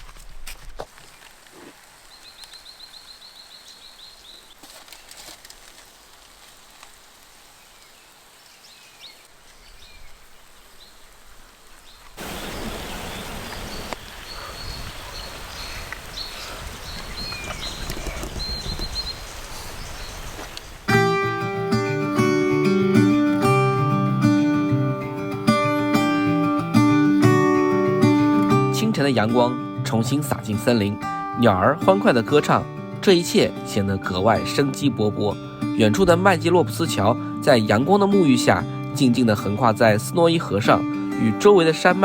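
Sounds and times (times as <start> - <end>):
bird chirps: 11.9 - 20.9
bird trill: 12.2 - 20.8.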